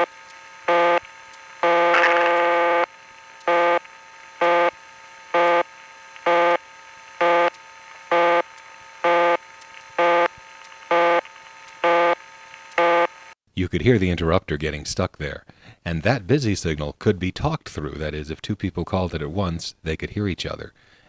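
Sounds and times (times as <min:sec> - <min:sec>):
telephone busy signal: 0:00.0 - 0:01.0, 0:01.6 - 0:02.9, 0:03.5 - 0:03.8, 0:04.4 - 0:04.8, 0:05.4 - 0:05.7, 0:06.3 - 0:06.6, 0:07.2 - 0:07.5, 0:08.1 - 0:09.4, 0:10.0 - 0:10.3, 0:10.9 - 0:11.2, 0:11.8 - 0:12.2, 0:12.8 - 0:13.3
faint line hum: 0:00.0 - 0:13.4.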